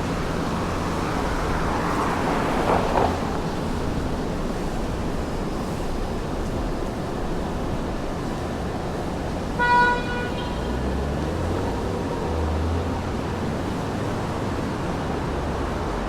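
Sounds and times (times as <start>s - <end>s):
city street traffic: 0.0s - 16.0s
car horn toot: 9.6s - 10.8s.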